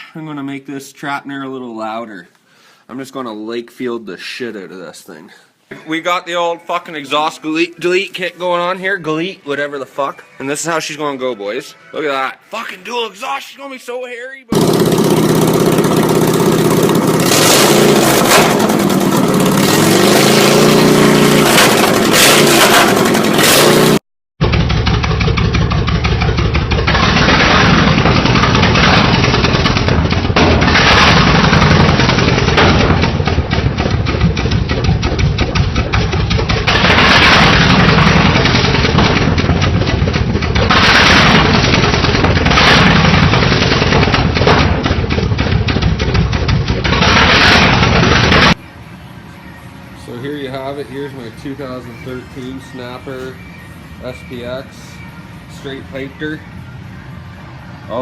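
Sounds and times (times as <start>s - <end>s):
lawn tractor engine running loud: 14.5s - 49.1s.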